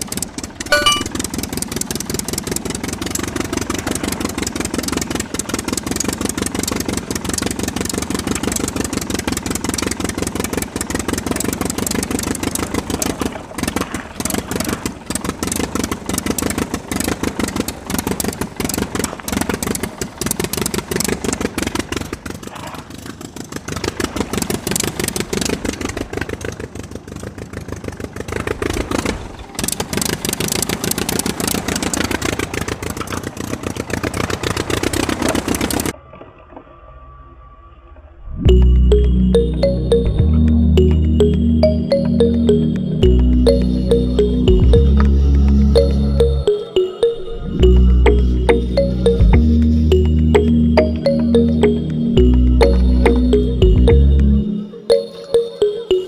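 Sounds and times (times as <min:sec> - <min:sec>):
small diesel engine running: 0:00.0 - 0:35.9.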